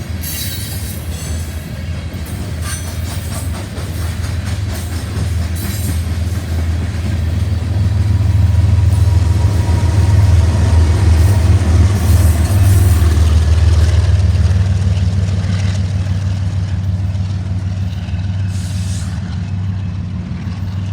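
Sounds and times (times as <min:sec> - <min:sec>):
train rumbling past: 0:00.0 - 0:20.9.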